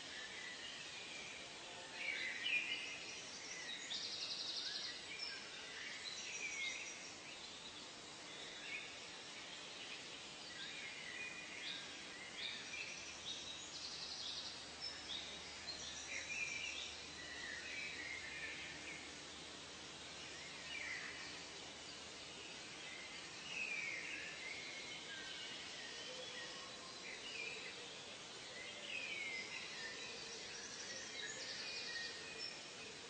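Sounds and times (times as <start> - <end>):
faint background hiss: 0.0 - 33.0.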